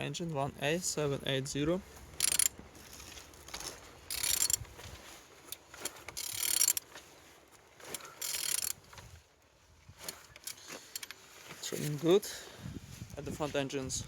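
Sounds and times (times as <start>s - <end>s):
small clicks: 2.2s - 2.5s, 3.5s - 4.8s, 5.5s - 6.9s, 7.9s - 9.1s
metallic ratcheting: 2.2s - 2.6s, 4.1s - 4.8s, 5.5s - 6.8s, 7.9s - 9.1s.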